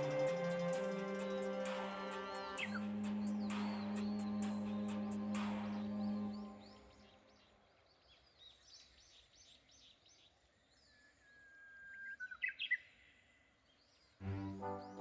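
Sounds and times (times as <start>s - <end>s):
bird long whistle: 0.0s - 7.1s
faint bird song chirps: 0.0s - 15.0s.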